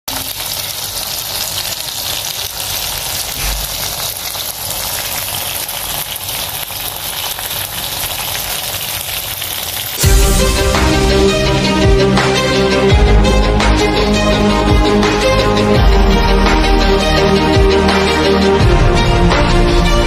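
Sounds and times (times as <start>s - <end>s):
stir-fry sizzling in a wok: 0.1s - 18.7s
music: 10.0s - 20.0s.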